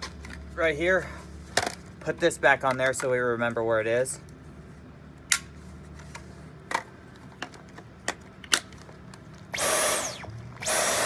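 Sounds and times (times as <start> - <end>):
cordless vacuum motor whine: 9.5 - 11.0.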